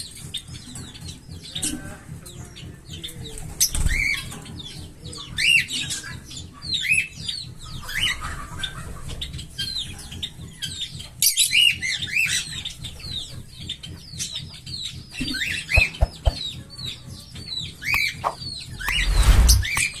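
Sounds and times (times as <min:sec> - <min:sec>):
parrots chirping and whistling: 0:15.3 - 0:16.5.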